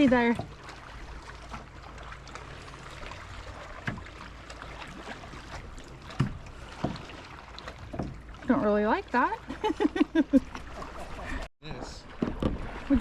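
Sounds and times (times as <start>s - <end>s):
water lapping around kayak: 0.0s - 13.0s
knocks on kayak: 12.2s - 12.7s.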